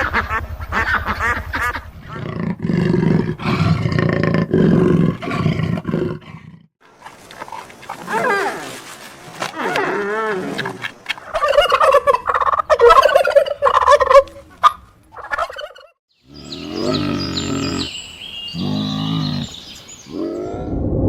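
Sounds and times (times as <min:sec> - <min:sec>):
turkey gobbling: 0:11.3 - 0:16.0
low-pitched animal call: 0:16.2 - 0:20.9.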